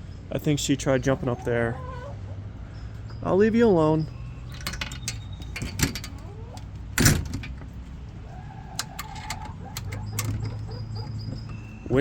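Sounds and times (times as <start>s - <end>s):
light clicks and knocks: 4.4s - 7.8s, 8.8s - 11.6s
wooden door shutting: 4.5s - 6.3s, 7.0s - 7.7s, 8.8s - 10.7s.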